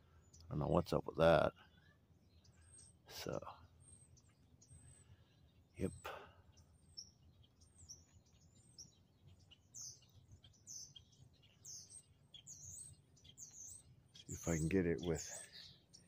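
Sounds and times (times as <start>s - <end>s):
small birds chirping faintly: 0.0s - 16.0s.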